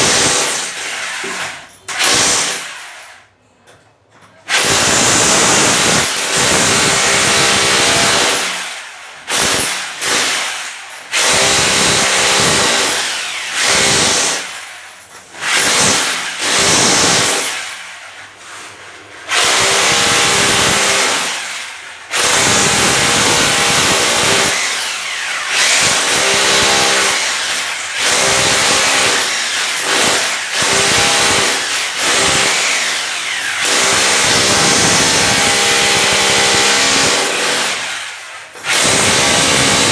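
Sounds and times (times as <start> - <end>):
electric power tool motor: 22.4 - 39.9.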